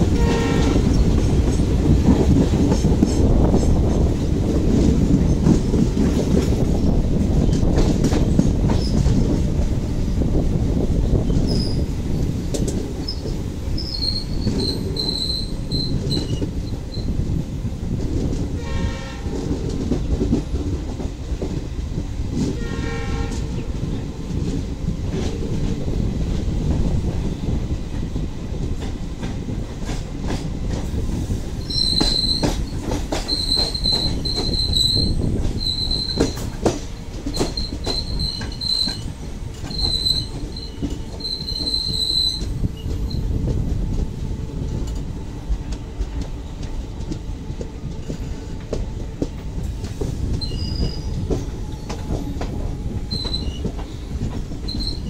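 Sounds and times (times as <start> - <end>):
train rumble with wheel clicks: 0.0 - 55.0
locomotive horn: 0.1 - 1.0, 18.5 - 19.5, 22.6 - 23.6
train wheels squealing: 7.4 - 9.2, 11.2 - 17.2, 31.3 - 43.4, 49.6 - 55.0.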